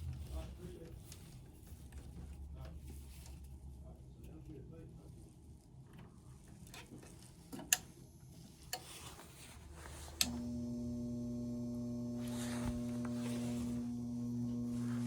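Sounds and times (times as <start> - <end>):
furnace motor humming: 9.9 - 15.0.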